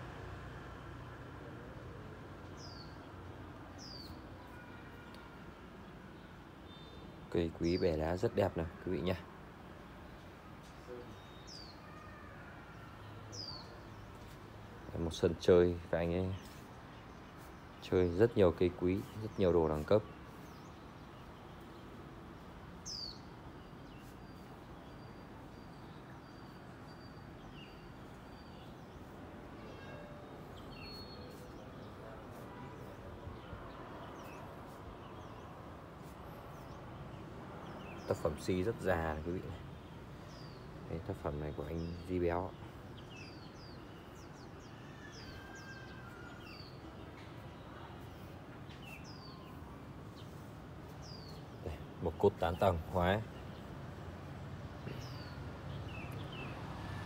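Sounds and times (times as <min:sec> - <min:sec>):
birds chirping: 0:00.0 - 0:57.0
small songbird calling: 0:03.8 - 0:05.3, 0:13.3 - 0:15.1, 0:15.9 - 0:32.7.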